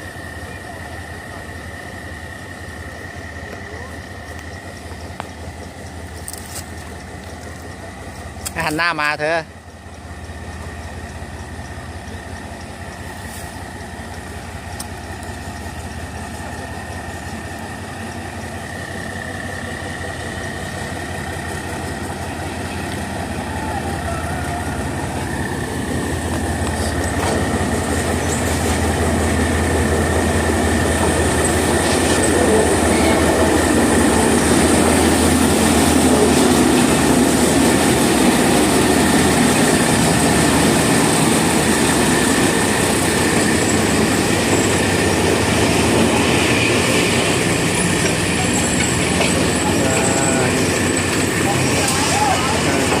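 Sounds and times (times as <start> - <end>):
train engine hum and running noise: 0.0 - 53.0.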